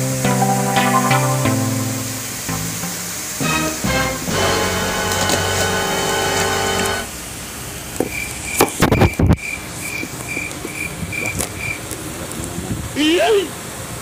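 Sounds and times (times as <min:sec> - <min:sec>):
background music: 0:00.0 - 0:07.1.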